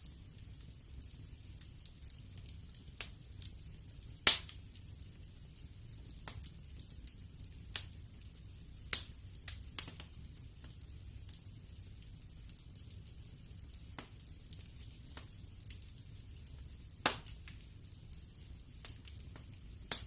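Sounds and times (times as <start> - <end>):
fireplace fire crackling: 0.0 - 20.0.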